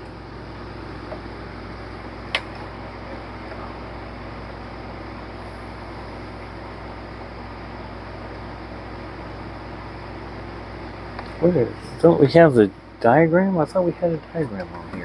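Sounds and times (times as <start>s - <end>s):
steady machine hum: 0.0s - 15.0s
sharp click: 2.3s - 2.6s.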